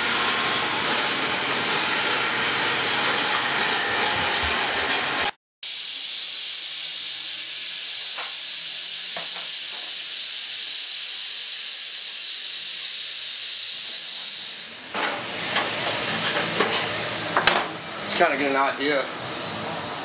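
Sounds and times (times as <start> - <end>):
high-pitched hiss: 5.7 - 14.9.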